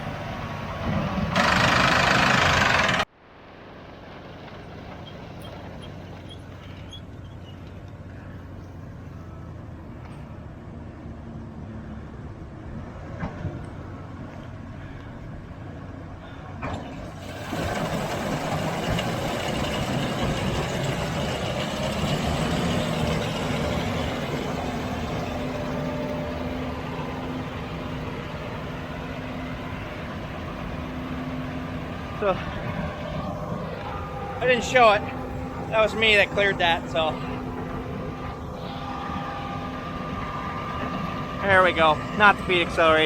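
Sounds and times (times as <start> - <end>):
heavy farm machinery running: 0.0 - 11.1, 12.1 - 43.0
low engine hum: 0.0 - 43.0.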